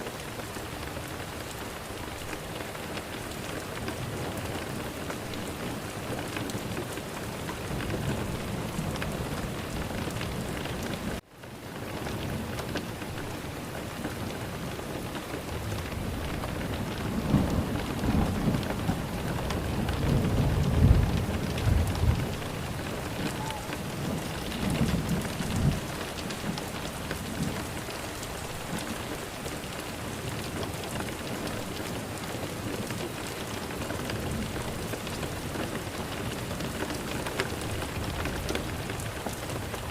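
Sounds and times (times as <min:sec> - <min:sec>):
steady rain falling: 0:00.0 - 0:39.9
thunder rumbling: 0:15.4 - 0:29.1.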